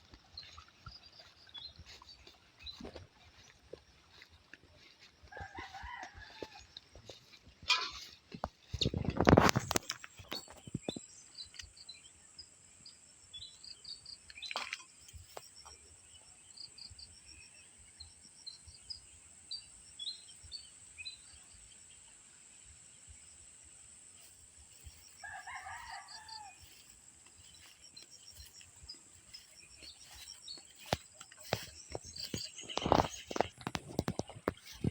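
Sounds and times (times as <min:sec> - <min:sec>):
small birds chirping: 0:00.0 - 0:05.2, 0:24.7 - 0:34.9
rooster crowing: 0:05.3 - 0:06.8, 0:25.2 - 0:26.9.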